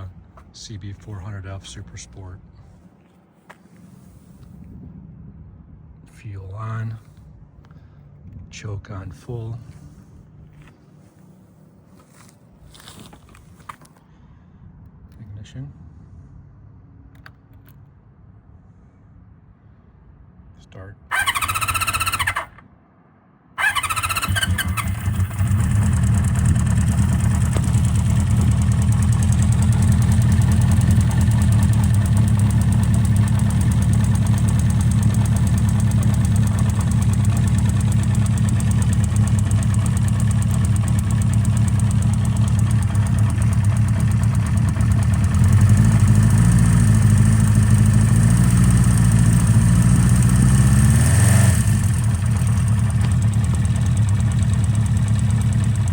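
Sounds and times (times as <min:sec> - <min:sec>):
motorcycle engine idling: 0:21.1 - 0:22.6, 0:23.6 - 0:55.9.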